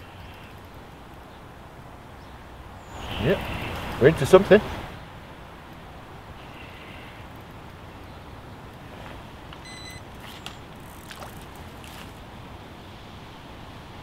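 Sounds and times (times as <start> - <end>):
faint clicks: 0.0 - 1.3
short high beep: 9.6 - 10.1.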